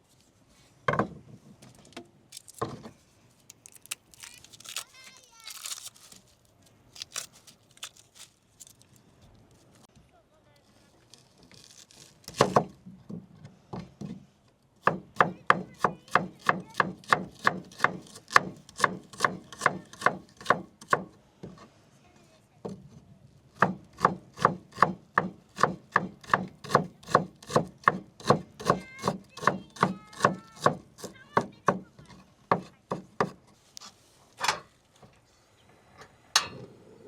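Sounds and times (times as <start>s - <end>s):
knife chopping on wooden board: 14.8s - 21.1s, 23.6s - 31.8s, 32.5s - 33.4s.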